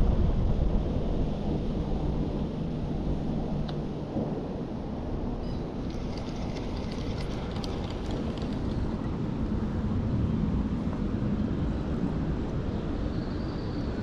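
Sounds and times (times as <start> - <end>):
water pouring over waterfall: 5.7 - 9.0.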